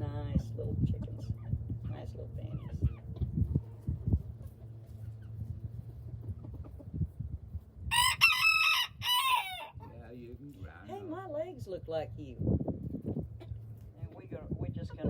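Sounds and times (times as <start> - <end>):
rooster crowing: 7.9 - 9.8.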